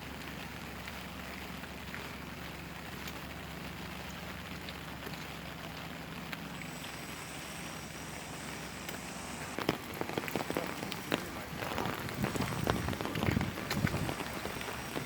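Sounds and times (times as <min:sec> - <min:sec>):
heavy raindrops ticking: 0:05.8 - 0:15.0
rain hissing: 0:05.9 - 0:15.0.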